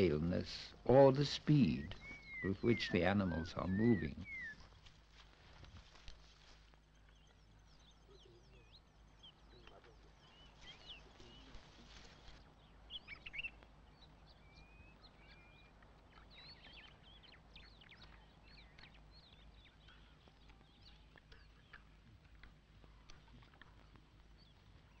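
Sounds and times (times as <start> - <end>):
birds chirping and whistling: 0.0 - 4.9, 6.8 - 22.5.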